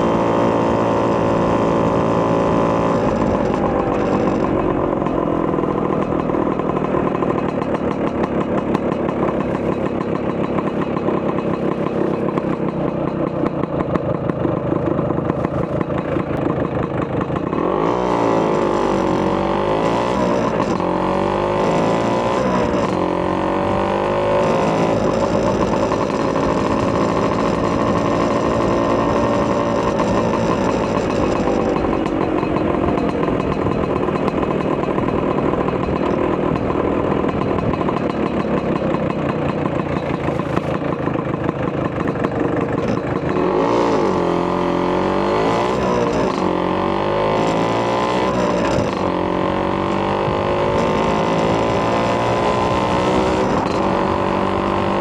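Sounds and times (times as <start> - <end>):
scooter engine revving while riding: 0.0 - 55.0.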